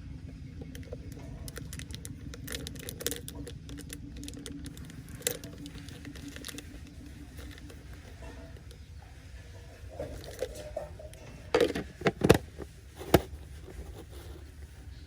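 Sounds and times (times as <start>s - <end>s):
steady low hum: 0.0s - 15.0s
wrapper crinkling clicks: 0.8s - 8.7s.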